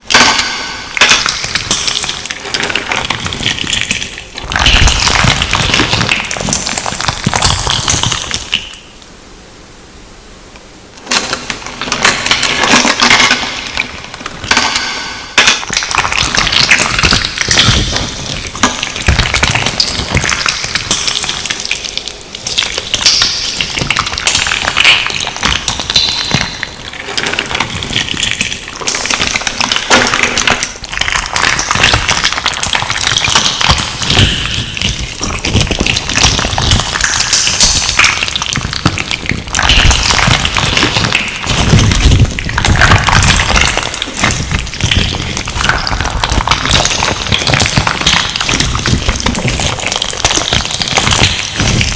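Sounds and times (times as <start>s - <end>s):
wet crackling and popping: 0.0s - 9.2s, 10.4s - 51.9s.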